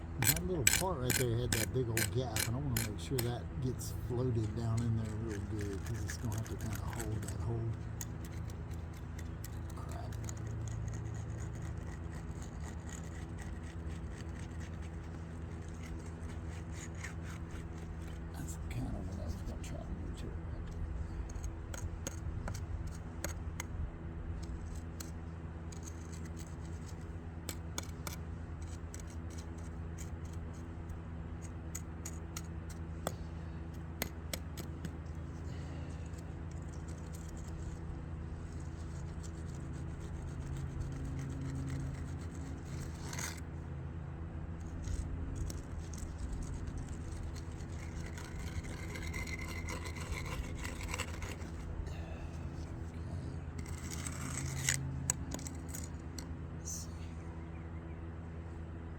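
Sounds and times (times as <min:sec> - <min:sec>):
hand tool scraping wet concrete: 0:00.0 - 0:19.7, 0:24.4 - 0:30.7, 0:38.4 - 0:43.5, 0:44.6 - 0:52.9, 0:53.5 - 0:56.3
steady low hum: 0:00.0 - 0:58.9.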